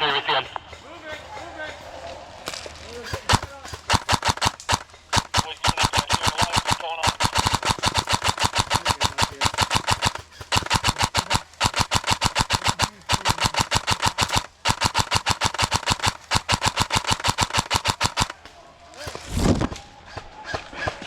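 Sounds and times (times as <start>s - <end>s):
airsoft gun firing bursts: 2.6s - 19.4s
gun motor whine: 3.1s - 18.4s.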